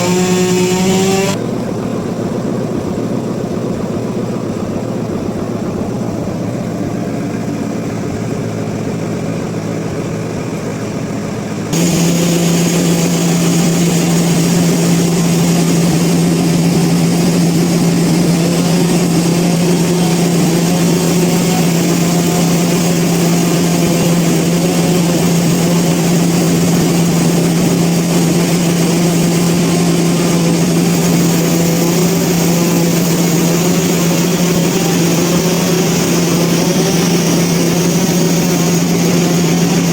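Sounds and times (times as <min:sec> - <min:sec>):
sawmill machinery humming: 0:00.0 - 0:39.9
hiss: 0:11.8 - 0:39.9.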